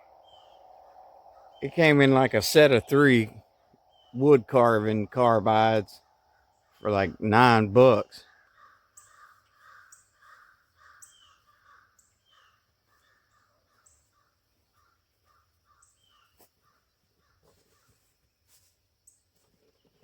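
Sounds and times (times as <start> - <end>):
faint high chirps: 0.0 - 5.4
faint bird calls: 0.0 - 7.2, 8.1 - 20.0.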